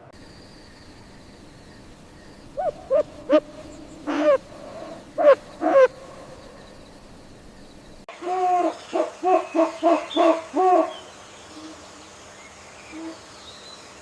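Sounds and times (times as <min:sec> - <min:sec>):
animal calling: 0:02.5 - 0:06.4.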